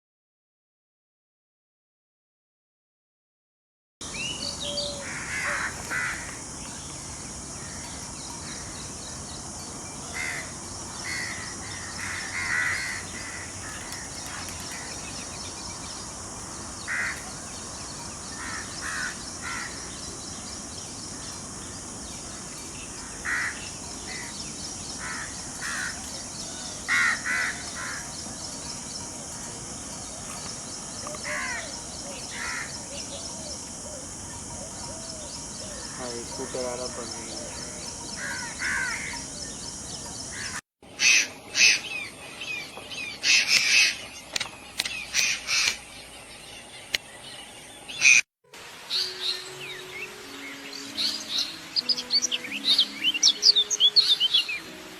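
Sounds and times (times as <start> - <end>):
steady high-pitched hiss: 4.0 - 54.9
crows cawing: 4.6 - 6.5, 7.6 - 8.8, 10.1 - 15.2, 16.8 - 17.6, 18.3 - 20.0, 22.3 - 24.4, 25.0 - 28.4, 31.1 - 39.4, 40.3 - 41.8.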